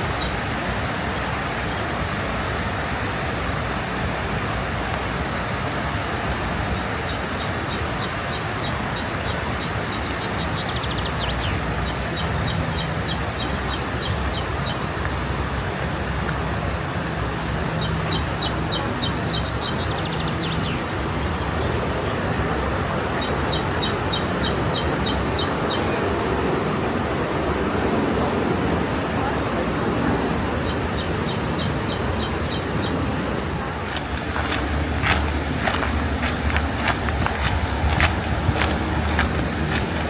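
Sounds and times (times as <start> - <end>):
flowing water rushing: 0.0 - 40.0
songbird singing: 6.7 - 15.0, 17.3 - 33.8.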